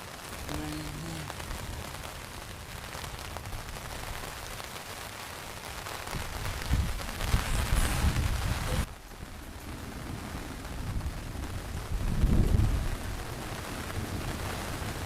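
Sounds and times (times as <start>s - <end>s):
rain pattering on a tarp: 0.0s - 15.0s
thunder rumbling: 5.8s - 15.0s.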